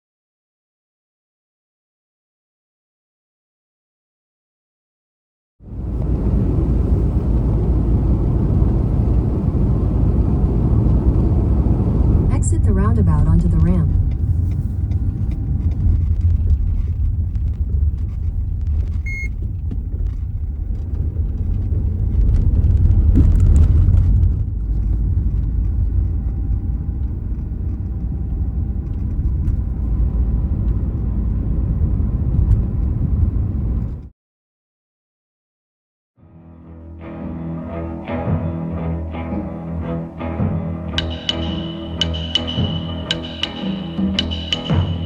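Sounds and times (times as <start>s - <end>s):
car engine and road noise: 5.6s - 34.1s, 36.9s - 45.0s
short high beep: 19.1s - 19.3s.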